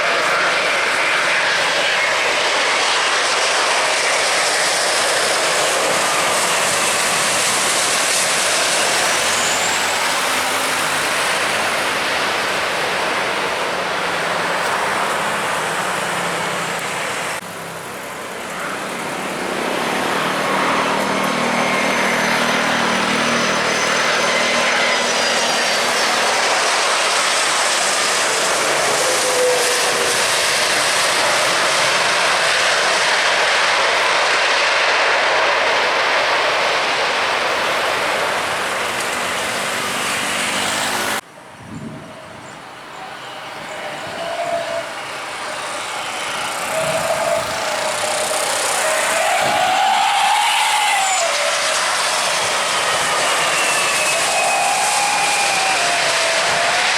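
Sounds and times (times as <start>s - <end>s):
jet engine roar: 0.0s - 56.9s.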